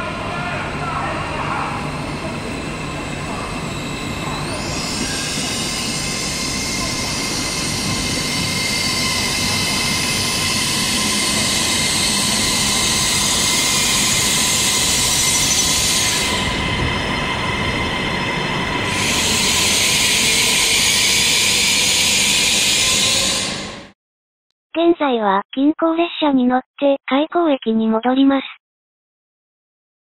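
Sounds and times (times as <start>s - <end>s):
train rolling on rails: 0.0s - 23.9s.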